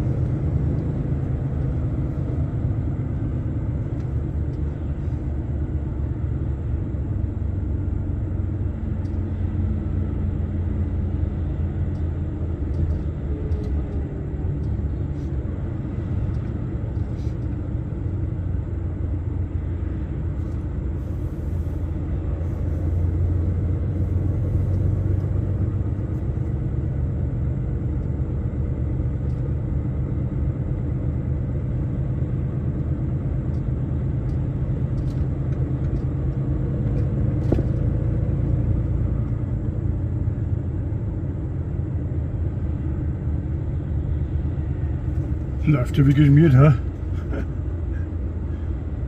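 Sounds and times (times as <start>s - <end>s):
truck engine and road rumble: 0.0s - 49.0s.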